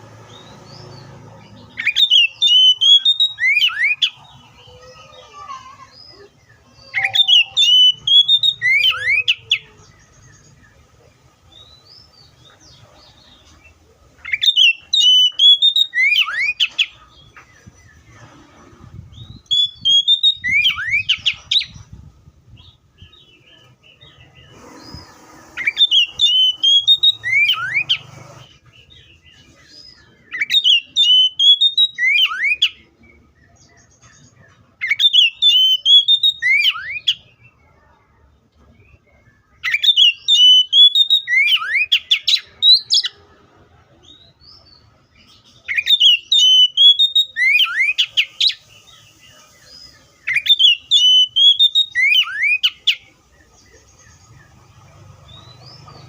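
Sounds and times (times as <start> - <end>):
bird singing whistled phrase: 1.8 - 4.2, 6.8 - 9.7, 14.2 - 16.8, 19.2 - 21.8, 24.8 - 28.0, 30.3 - 32.8, 34.8 - 37.2, 39.6 - 43.1, 45.7 - 48.6, 50.2 - 53.0.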